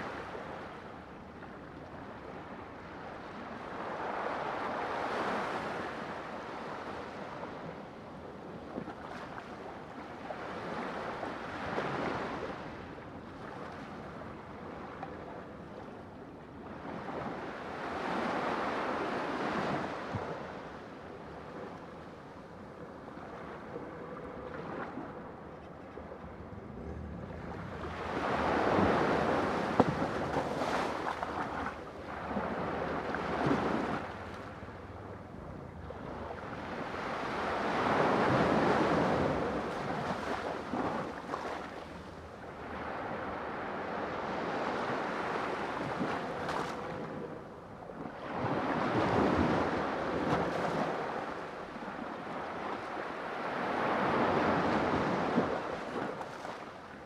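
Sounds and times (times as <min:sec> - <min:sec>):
sea waves breaking: 0:17.0 - 0:47.4, 0:48.1 - 0:57.0.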